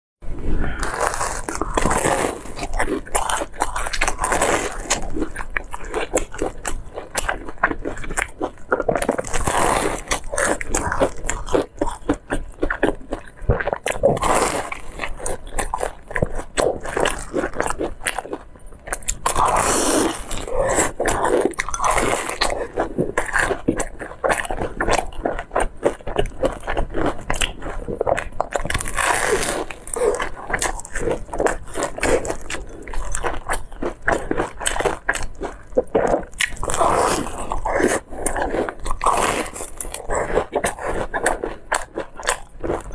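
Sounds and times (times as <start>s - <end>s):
crunching and chewing: 0.7s - 42.9s.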